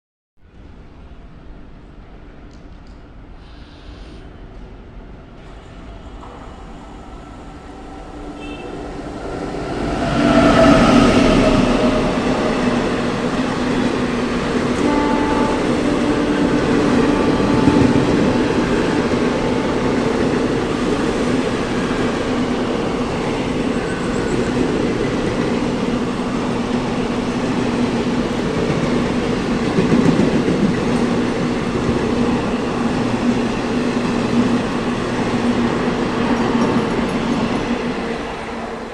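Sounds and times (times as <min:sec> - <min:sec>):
train coaches rumbling past: 0:00.4 - 0:38.9.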